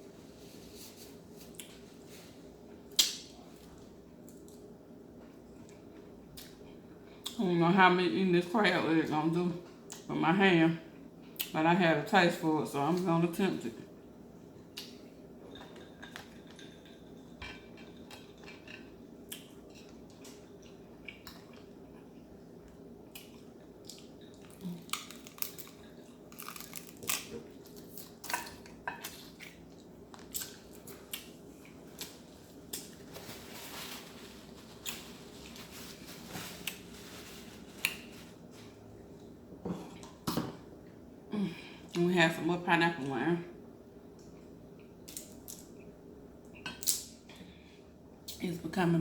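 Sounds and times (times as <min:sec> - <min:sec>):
crunching and chewing: 0:14.6 - 0:38.3
crab shells cracking: 0:24.4 - 0:28.5.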